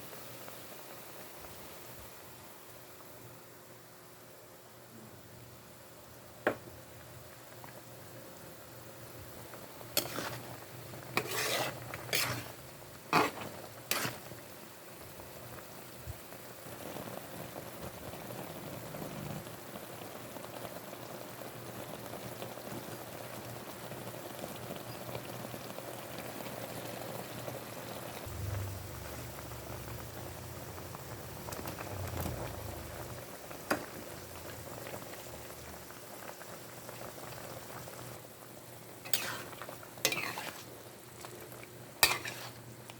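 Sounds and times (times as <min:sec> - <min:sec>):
chicken sizzling in a pan: 0:06.0 - 0:42.9
utensil scraping and knocking pan: 0:10.0 - 0:10.5, 0:11.1 - 0:14.2, 0:39.1 - 0:39.5, 0:40.1 - 0:40.7, 0:42.0 - 0:42.6.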